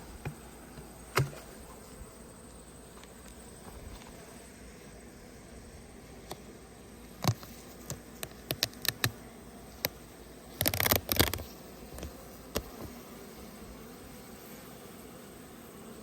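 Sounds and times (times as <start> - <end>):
honeybees buzzing: 0.0 - 16.0
sharp clicks and knocks: 7.2 - 9.2.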